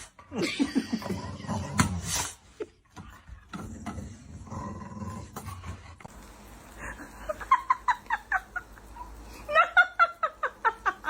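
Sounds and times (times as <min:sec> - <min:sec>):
dog growling low: 0:03.6 - 0:05.9.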